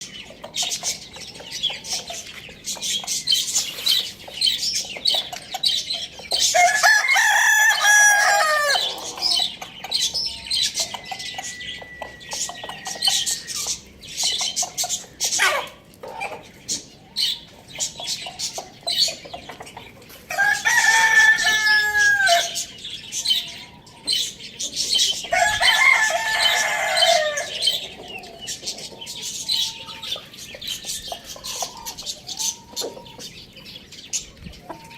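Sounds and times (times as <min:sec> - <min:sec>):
small birds chirping: 0:00.0 - 0:34.9
rooster crowing: 0:06.6 - 0:09.0, 0:20.3 - 0:22.6, 0:25.3 - 0:27.8.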